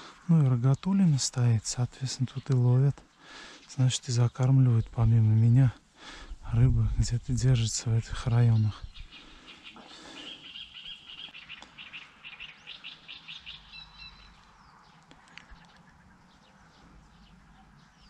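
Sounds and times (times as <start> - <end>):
faint outdoor background: 0.0 - 18.0
small bird chirping: 8.3 - 18.0.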